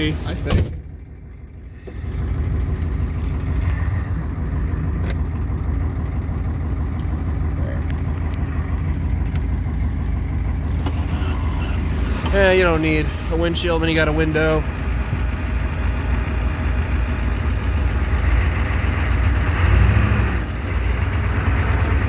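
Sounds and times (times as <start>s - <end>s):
diesel pickup engine droning: 0.0s - 22.0s.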